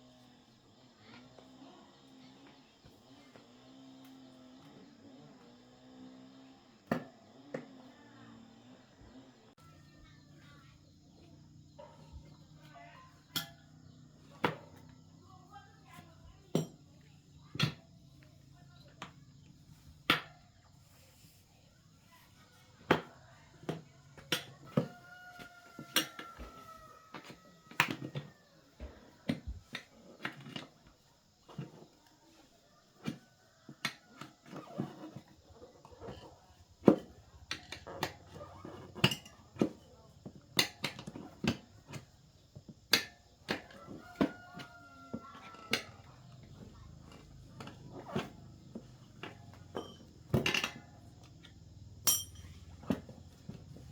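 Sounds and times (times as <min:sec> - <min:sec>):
hand tools knocking on metal: 0:52.0 - 0:53.6.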